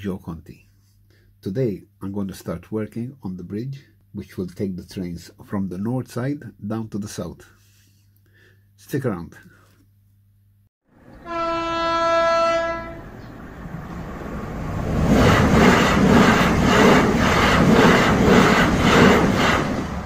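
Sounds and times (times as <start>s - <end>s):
train horn: 11.1s - 13.2s
train wheels clattering: 15.0s - 20.0s.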